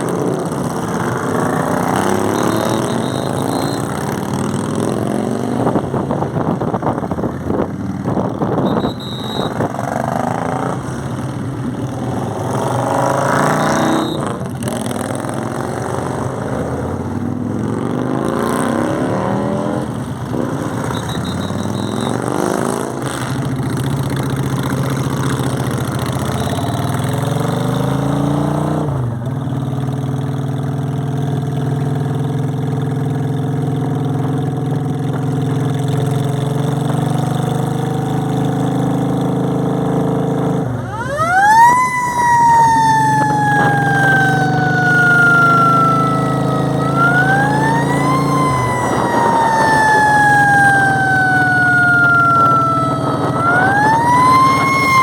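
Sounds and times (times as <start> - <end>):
motorcycle engines revving: 0.0 - 55.0
siren wailing: 0.3 - 5.7, 11.9 - 16.4, 18.5 - 22.6, 40.6 - 55.0.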